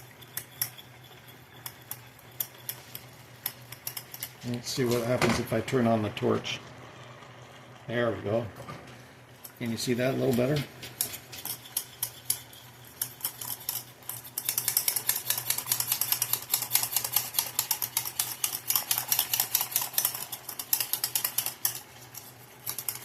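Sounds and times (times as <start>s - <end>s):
whisk clicking against a pan: 0.0s - 4.4s, 9.6s - 23.0s.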